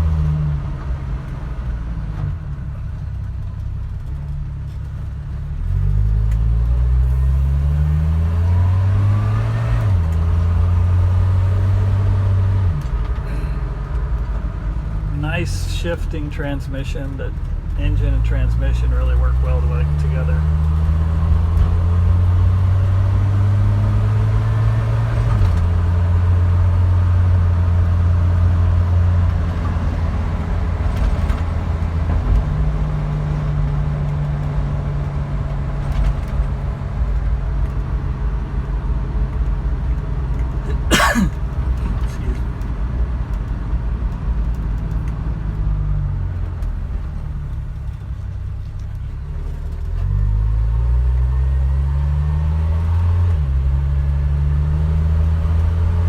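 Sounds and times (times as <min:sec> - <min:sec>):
truck engine running: 0:09.9 - 0:23.0, 0:25.6 - 0:44.3.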